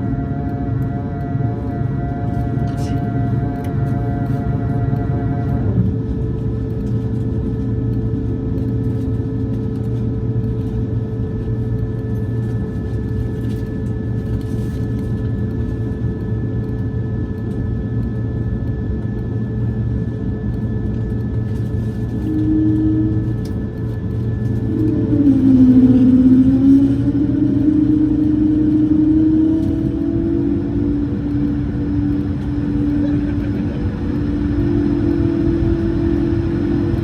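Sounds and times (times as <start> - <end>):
engine whining tones: 0.0 - 10.4, 20.2 - 37.0
aircraft cabin engine rumble: 0.0 - 37.0.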